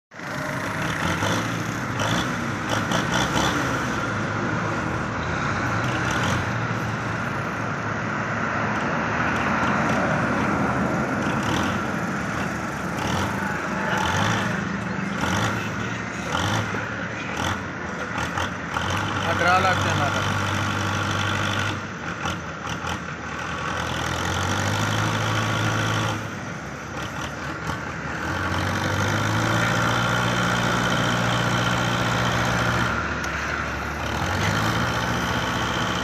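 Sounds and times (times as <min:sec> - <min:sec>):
tractor diesel engine straining: 0:00.1 - 0:36.0.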